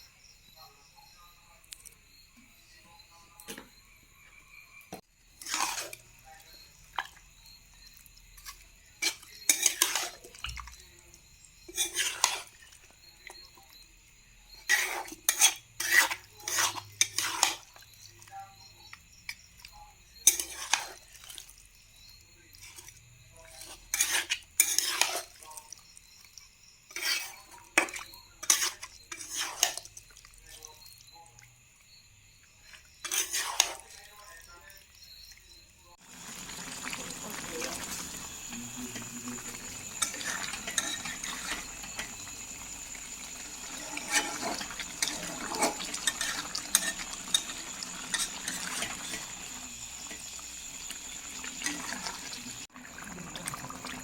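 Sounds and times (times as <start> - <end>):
metal spoon scraping a pot: 5.4 - 6.1, 8.4 - 10.4, 11.6 - 12.8, 14.6 - 17.8, 20.2 - 21.5, 22.6 - 25.5, 26.9 - 29.9, 32.7 - 34.0, 38.9 - 50.3.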